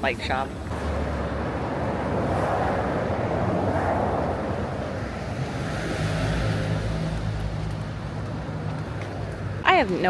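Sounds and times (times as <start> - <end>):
road traffic: 0.0 - 10.0
wind on microphone: 0.6 - 7.3.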